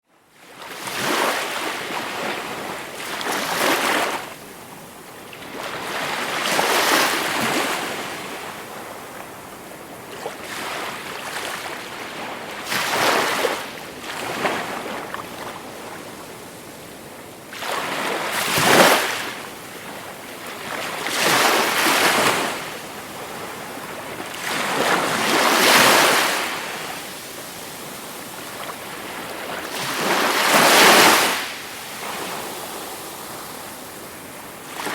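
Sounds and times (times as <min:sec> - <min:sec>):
sea waves washing ashore: 0:17.3 - 0:34.9.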